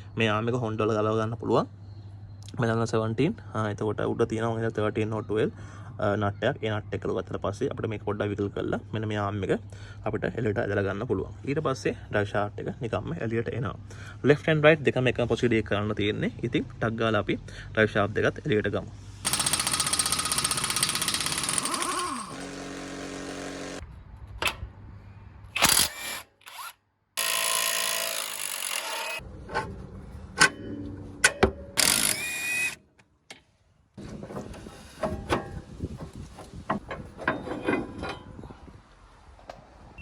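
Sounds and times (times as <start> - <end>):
impact wrench running: 19.2 - 23.8, 31.8 - 32.8
metal knocks and clanks: 29.4 - 31.8, 34.0 - 38.7.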